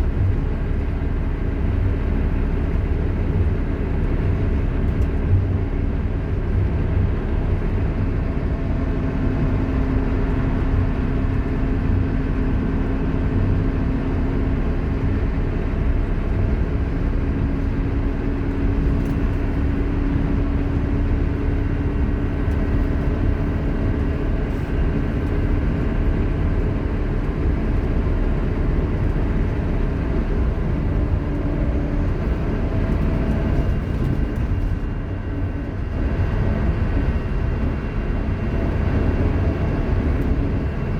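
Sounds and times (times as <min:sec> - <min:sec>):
bus engine rumble: 0:00.0 - 0:40.9.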